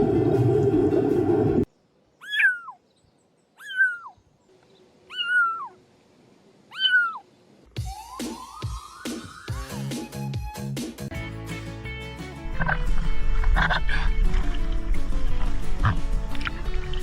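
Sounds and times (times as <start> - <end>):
cat meowing: 2.2 - 2.8, 3.6 - 4.1, 5.1 - 5.8, 6.7 - 7.2.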